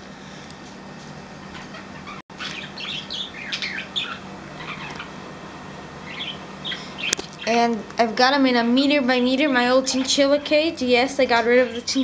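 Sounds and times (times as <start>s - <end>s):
budgerigars chirping and squawking: 1.5s - 5.1s, 6.0s - 7.6s, 11.4s - 11.9s.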